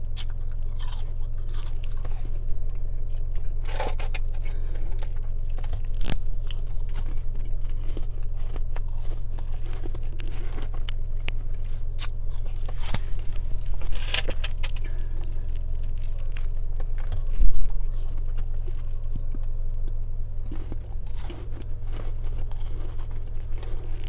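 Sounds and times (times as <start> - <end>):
chewing crunchy ice: 0.0 - 24.0
steady low hum: 0.0 - 24.0.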